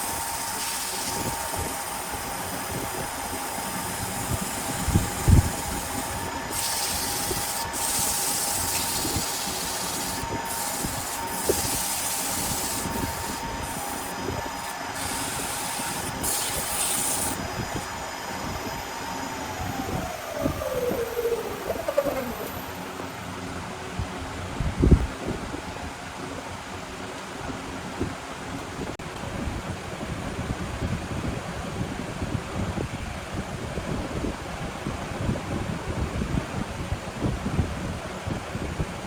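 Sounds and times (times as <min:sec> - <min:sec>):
tool cutting spinning wood: 0:00.0 - 0:23.0
wood lathe whining: 0:00.0 - 0:23.2.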